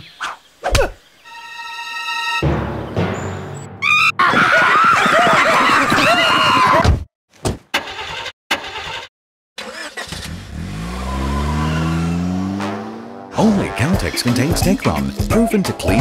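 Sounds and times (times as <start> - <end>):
car engine starting and revving: 9.6 - 13.3.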